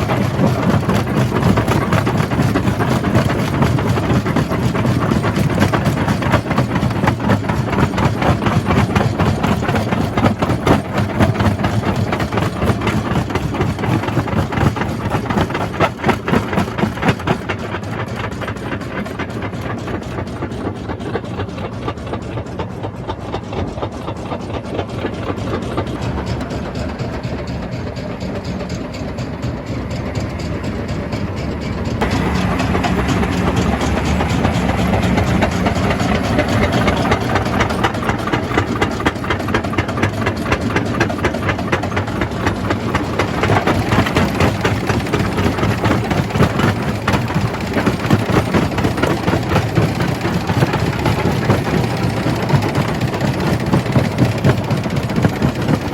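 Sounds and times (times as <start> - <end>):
heavy machine drone: 20.0 - 55.9.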